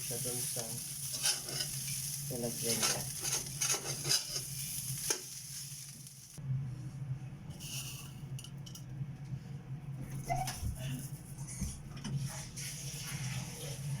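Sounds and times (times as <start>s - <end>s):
rice sizzling in a pan: 0.0s - 6.4s
spatula scraping a pan: 0.9s - 5.3s
utensils clinking: 2.6s - 5.2s.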